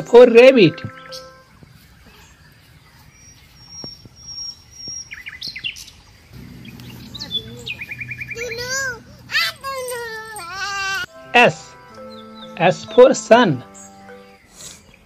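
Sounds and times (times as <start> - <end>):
small birds chirping: 0.0 - 15.0
low steady hum: 6.4 - 11.1.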